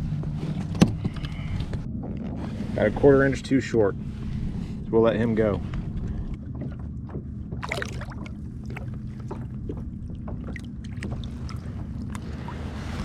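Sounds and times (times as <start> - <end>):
water sloshing: 5.8 - 13.0
water splash: 7.6 - 9.4.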